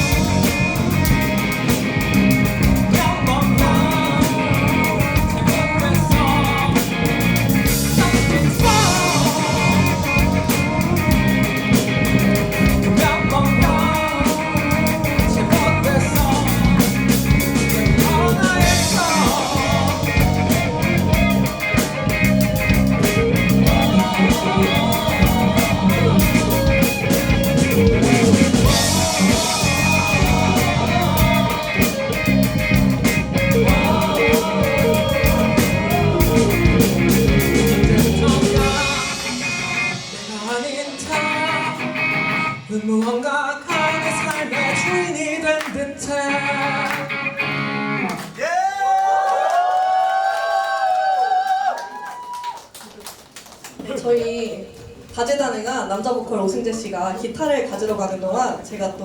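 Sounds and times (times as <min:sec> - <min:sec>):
drum kit beating: 0:00.0 - 0:45.2
live rock band playing: 0:00.0 - 0:48.4.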